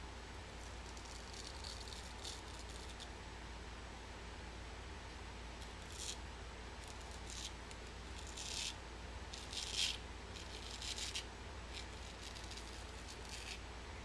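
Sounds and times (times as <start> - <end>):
razor scraping beard stubble: 0.6 - 3.1, 5.6 - 6.2, 6.8 - 13.6.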